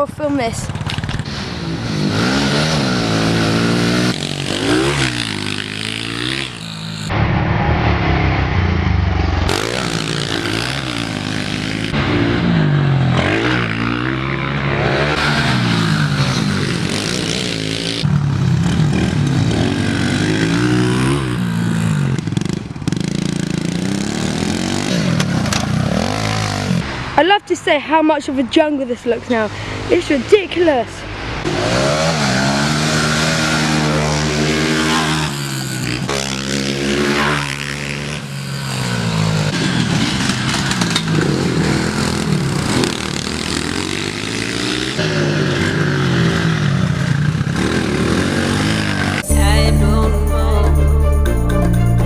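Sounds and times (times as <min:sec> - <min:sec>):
small motorbike engines revving: 0:00.0 - 0:07.1, 0:09.5 - 0:27.2, 0:31.2 - 0:50.0.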